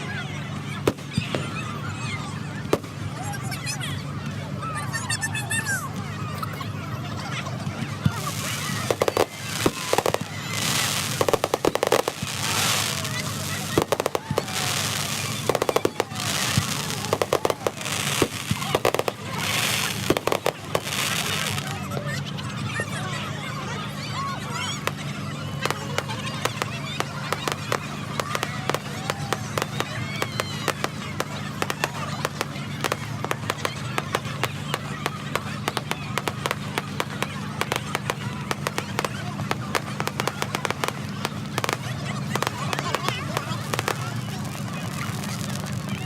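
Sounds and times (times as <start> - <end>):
fireworks bangs and crackles: 0.0 - 46.0
fireworks hissing: 8.0 - 21.9, 24.8 - 45.9.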